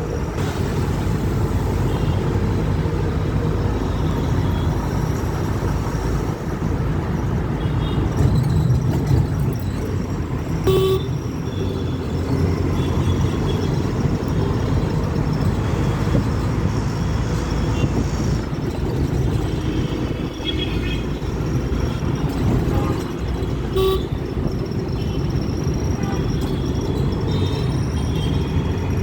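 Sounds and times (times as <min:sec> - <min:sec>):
auto-rickshaw engine running: 0:00.0 - 0:29.0
horn beeps: 0:10.6 - 0:11.8, 0:21.8 - 0:29.0.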